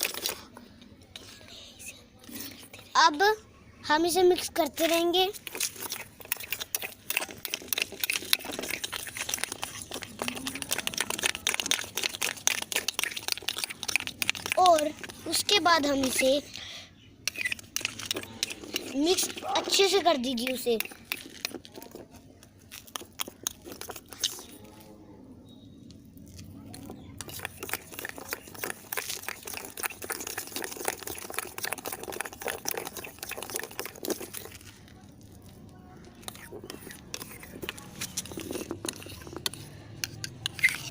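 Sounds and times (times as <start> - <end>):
wet sugar crunching and scraping: 0.0 - 1.4, 4.3 - 40.9.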